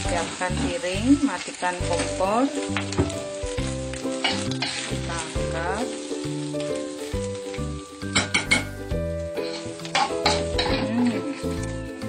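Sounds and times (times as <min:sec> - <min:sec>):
background music: 0:00.0 - 0:12.0
food sizzling: 0:00.0 - 0:12.0
metal spatula scraping a wok: 0:03.6 - 0:05.4, 0:08.0 - 0:11.8.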